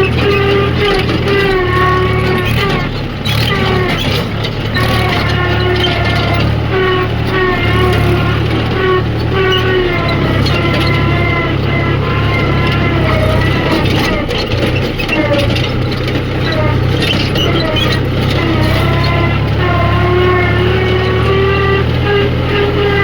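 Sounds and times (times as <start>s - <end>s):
heavy diesel machinery engine: 0.0s - 23.0s.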